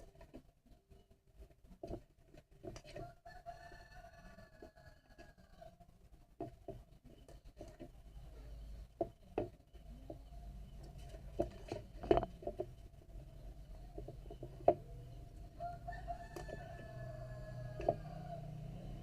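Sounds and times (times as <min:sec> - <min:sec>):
rooster crowing: 0:03.0 - 0:05.8, 0:15.5 - 0:19.0.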